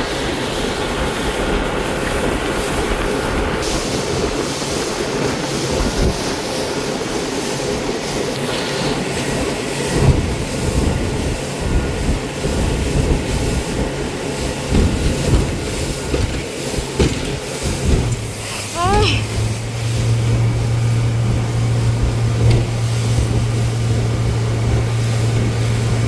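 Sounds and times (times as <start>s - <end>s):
motorboat engine drone: 0.0s - 26.0s
low thumps: 14.6s - 26.0s.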